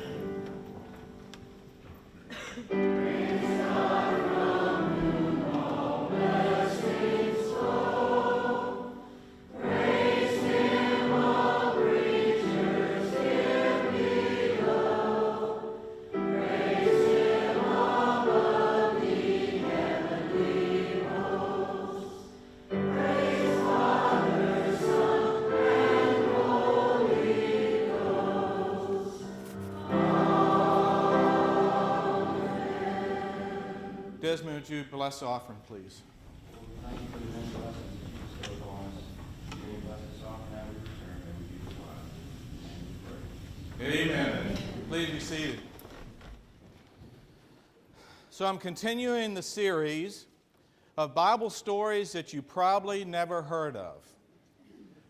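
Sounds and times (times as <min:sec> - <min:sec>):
church choir singing: 0:00.0 - 0:01.8, 0:02.6 - 0:34.8.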